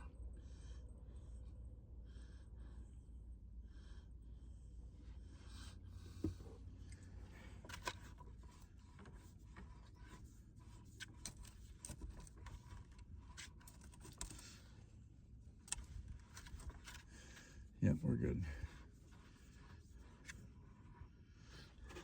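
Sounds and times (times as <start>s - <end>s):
handling clicks and scrapes: 6.0s - 14.8s, 15.6s - 17.6s, 18.7s - 22.0s.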